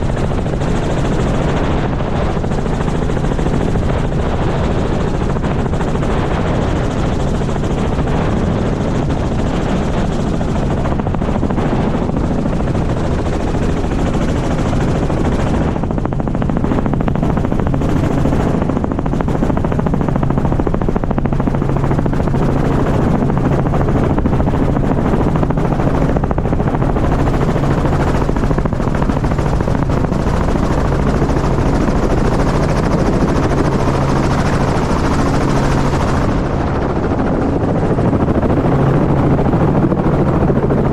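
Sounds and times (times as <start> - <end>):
helicopter engine and rotor drone: 0.0 - 40.9.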